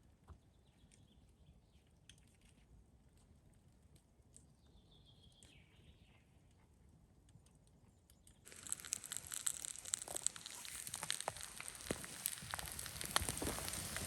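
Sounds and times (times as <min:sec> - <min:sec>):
soft ticks: 0:08.5 - 0:14.0.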